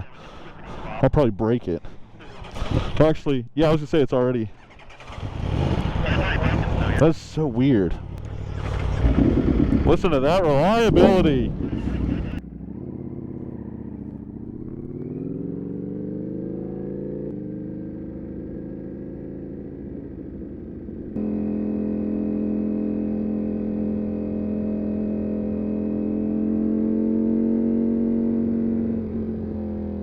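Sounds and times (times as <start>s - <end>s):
motorcycle engine running: 4.5s - 30.0s.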